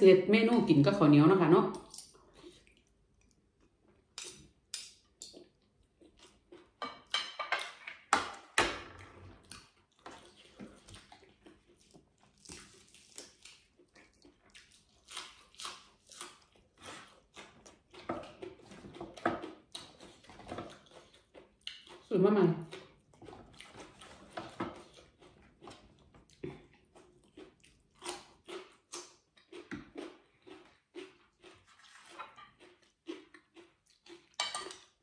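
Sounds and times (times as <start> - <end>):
crunchy chewing: 9.3 - 35.0.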